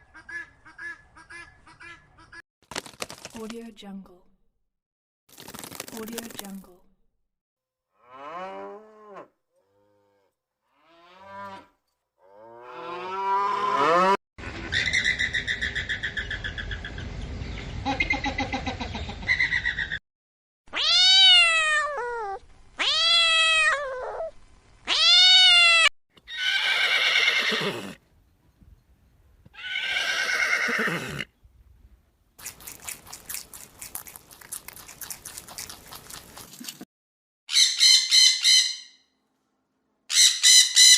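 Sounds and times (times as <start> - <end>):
cats meowing: 20.7 - 24.3, 24.9 - 27.0.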